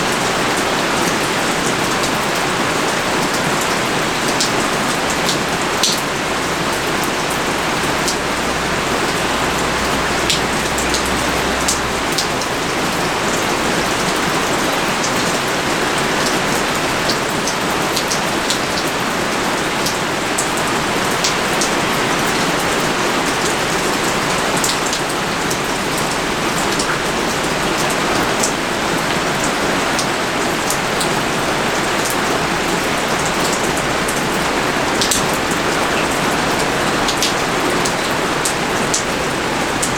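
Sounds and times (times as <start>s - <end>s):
heavy pouring rain: 0.0s - 39.9s
raindrops ticking: 0.1s - 31.2s, 32.8s - 39.9s.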